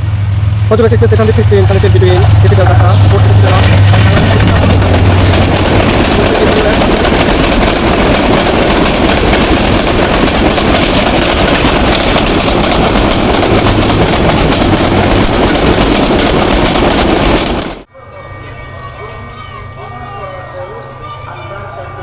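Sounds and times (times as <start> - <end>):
train wheels clattering: 0.8 - 17.9.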